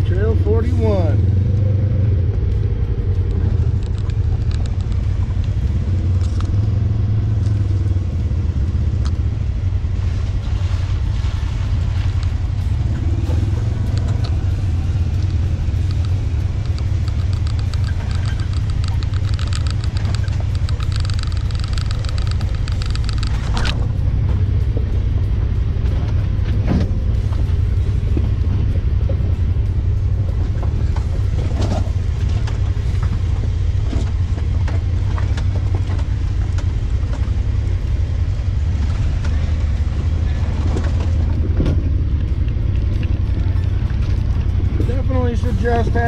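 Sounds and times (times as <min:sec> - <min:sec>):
utility vehicle engine running: 0:00.0 - 0:46.0
knocks and clatter: 0:10.4 - 0:46.0.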